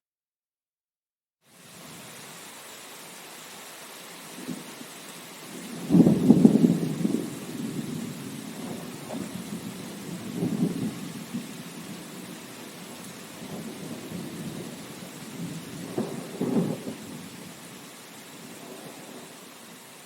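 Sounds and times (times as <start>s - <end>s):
steady rain: 1.4s - 20.0s
rumbles of thunder: 5.5s - 17.6s, 18.5s - 19.4s.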